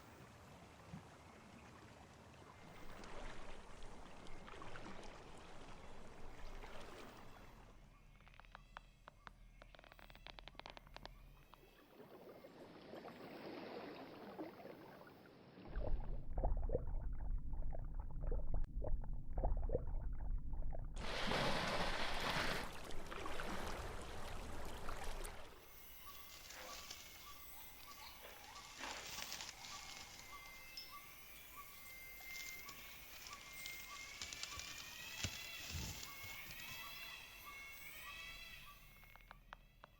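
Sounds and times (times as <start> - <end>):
low rumble: 15.7 - 21.4
evenly pulsed animal note: 25.6 - 39.3
rising animal chirp: 25.8 - 39.2.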